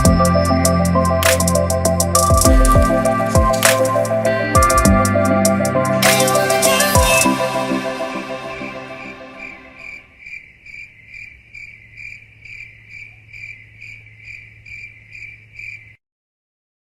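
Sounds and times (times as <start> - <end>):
music track: 0.0 - 10.1
cricket chirping: 9.4 - 16.0.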